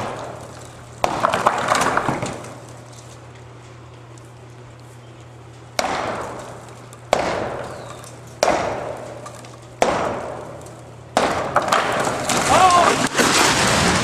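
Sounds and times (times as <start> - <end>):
sledgehammer striking metal wall: 0.0 - 2.6, 5.8 - 14.0.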